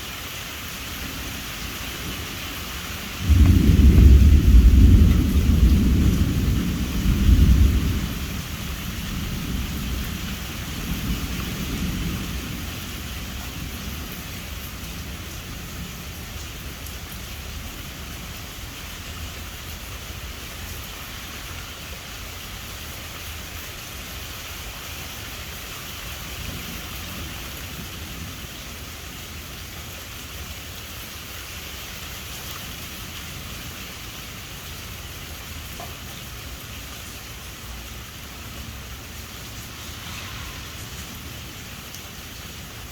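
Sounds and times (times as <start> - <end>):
rain hissing: 0.0 - 42.9
thunder rumbling: 3.0 - 18.1, 38.4 - 42.9.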